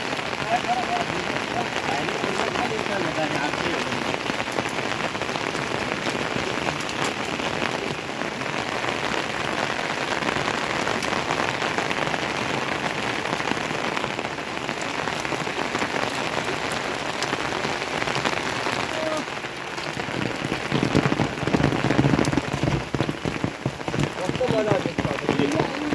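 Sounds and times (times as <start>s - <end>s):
steady rain falling: 0.0s - 25.9s.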